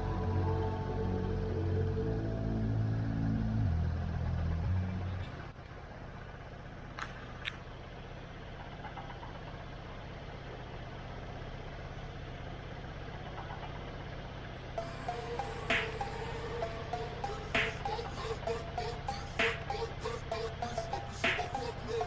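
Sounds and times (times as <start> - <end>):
music: 0.0 - 4.0, 14.8 - 22.0
motorcycle engine idling: 0.0 - 22.0.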